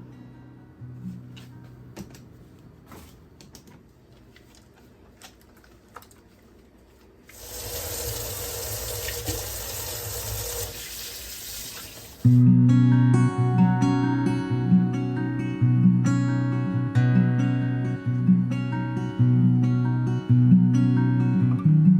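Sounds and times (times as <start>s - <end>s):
faint clicks and knocks: 3.4s - 7.2s
water running into a sink: 7.3s - 12.3s.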